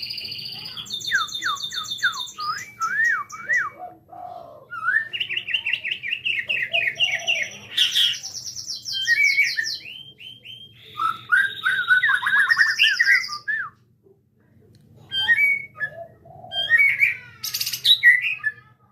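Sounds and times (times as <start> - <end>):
songbird singing varied song: 0.0 - 3.9, 4.7 - 13.7.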